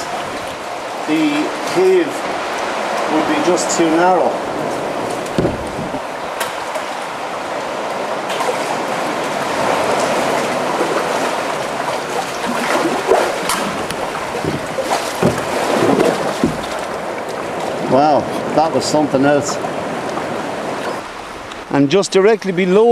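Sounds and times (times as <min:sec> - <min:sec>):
paddle splashes and knocks: 0:00.0 - 0:21.0
water sloshing around hull: 0:00.0 - 0:21.7.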